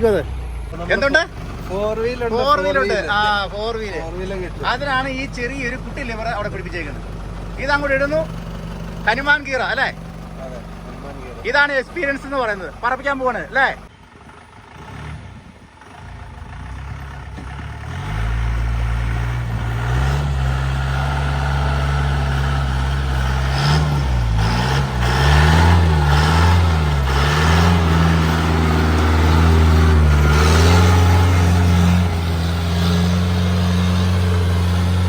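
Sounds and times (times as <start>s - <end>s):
off-road vehicle engine revving: 0.0s - 35.0s.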